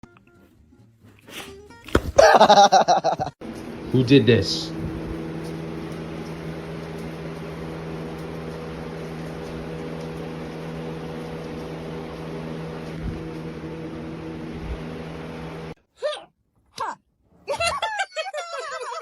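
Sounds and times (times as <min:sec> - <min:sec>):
motor humming: 0:03.4 - 0:15.8.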